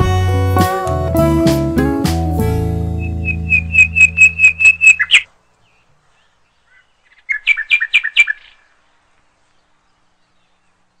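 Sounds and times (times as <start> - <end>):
bird chirping high notes: 2.8 - 5.9.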